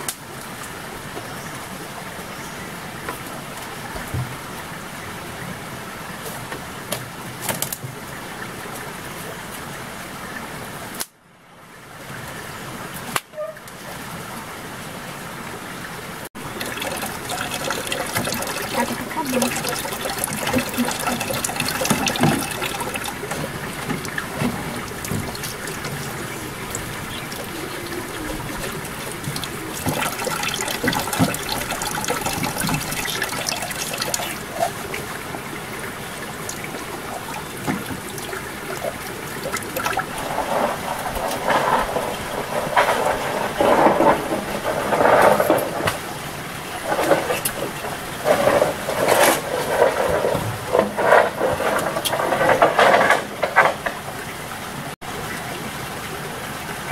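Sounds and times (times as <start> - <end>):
water running and splashing: 13.7 - 56.9
loud irregular noises: 16.4 - 34.8.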